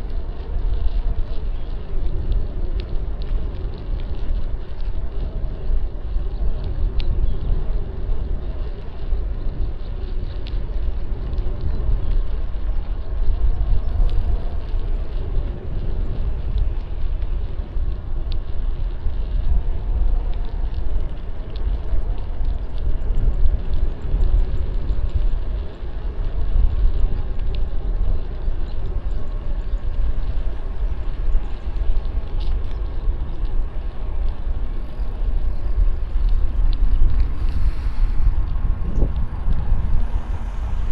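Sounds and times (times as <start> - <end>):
heavy low rumble: 0.0 - 40.9.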